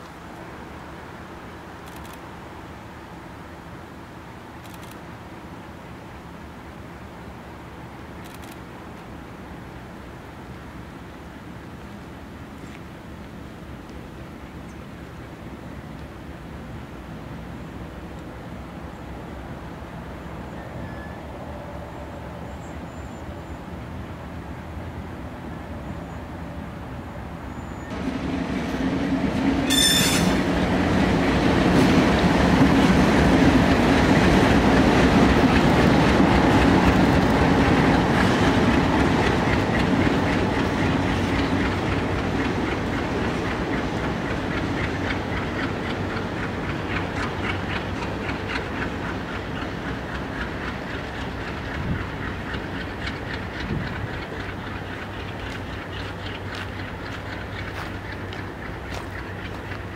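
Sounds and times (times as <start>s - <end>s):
locomotive engine running: 23.4s - 59.9s
high wheel squeal: 29.7s - 30.4s
wheels clicking over rail joints: 29.7s - 59.9s.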